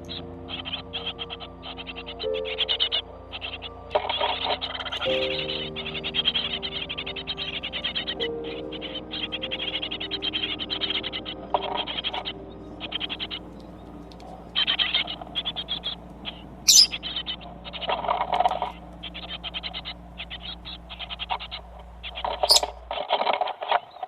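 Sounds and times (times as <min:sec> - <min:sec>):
sharp high bird chirp: 0:00.0 - 0:23.1
parrot chattering clicking trills: 0:08.8 - 0:23.9.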